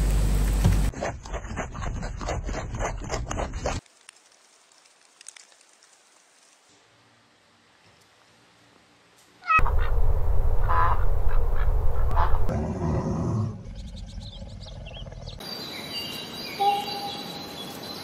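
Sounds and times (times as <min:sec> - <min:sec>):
ducks quacking: 0:09.5 - 0:10.0, 0:10.6 - 0:12.5
low rumble: 0:09.6 - 0:15.4.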